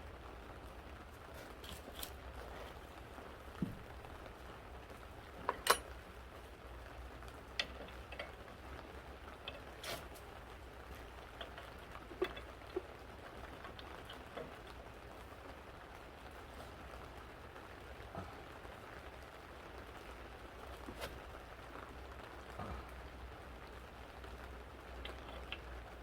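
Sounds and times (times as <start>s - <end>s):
low steady hum: 0.0s - 26.0s
sharp clicks and light knocks: 5.3s - 6.0s, 7.2s - 14.9s.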